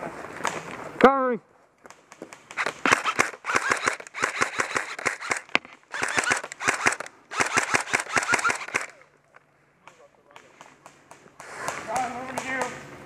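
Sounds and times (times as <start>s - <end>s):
airsoft guns firing bursts: 2.1s - 9.0s, 9.9s - 12.9s.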